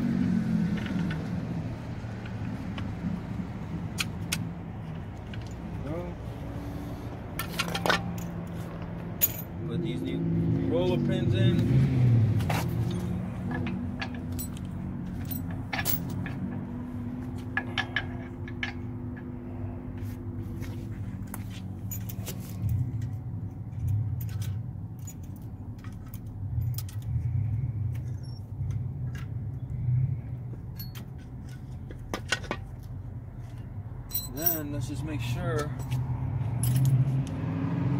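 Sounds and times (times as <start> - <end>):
metallic clinks and taps: 30.6 - 32.7.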